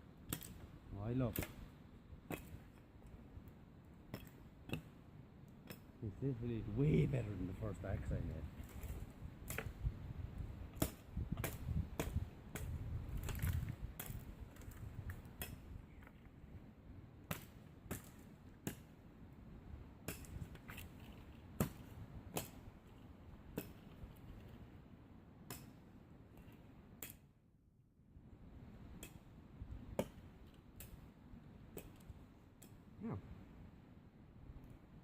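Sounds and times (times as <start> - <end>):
axe chopping wood: 1.3 - 1.6, 2.3 - 2.7, 4.1 - 4.9, 8.6 - 9.8, 10.7 - 15.6, 17.3 - 18.9, 20.0 - 20.9, 21.6 - 22.7, 23.6 - 23.9, 30.0 - 30.2.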